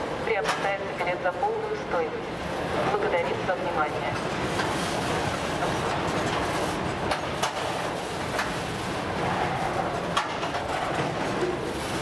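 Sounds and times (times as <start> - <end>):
freight train wheels rumbling: 0.0 - 12.0
wheels clacking over rail joints: 10.0 - 12.0.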